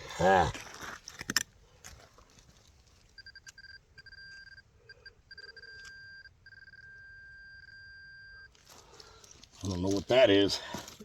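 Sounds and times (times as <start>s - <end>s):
metal detector beeping: 3.1s - 8.6s.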